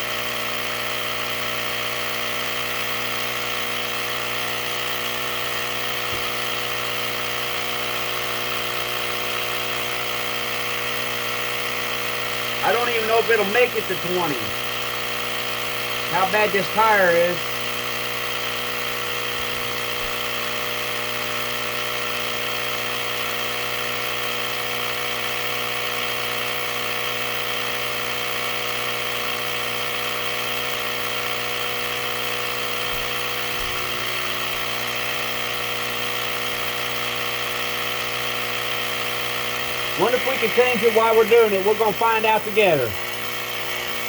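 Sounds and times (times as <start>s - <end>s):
air compressor running: 0.0s - 44.0s.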